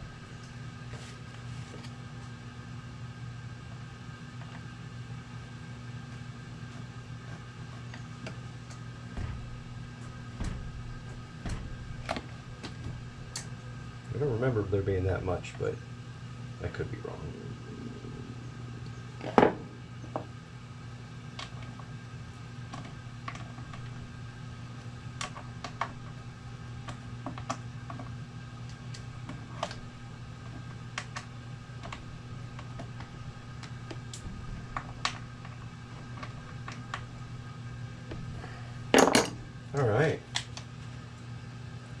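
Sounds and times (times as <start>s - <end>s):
steady low hum: 0.0s - 42.0s
sharp knock: 10.4s - 12.0s.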